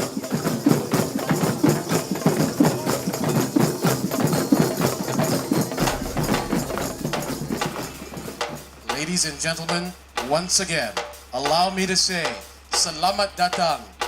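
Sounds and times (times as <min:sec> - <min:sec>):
hand drums playing: 0:00.0 - 0:10.4.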